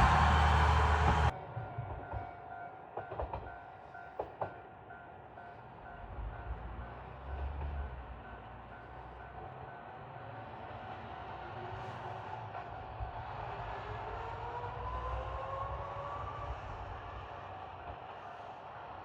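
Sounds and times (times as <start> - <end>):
distant diesel railcar rumble: 0.0 - 15.0.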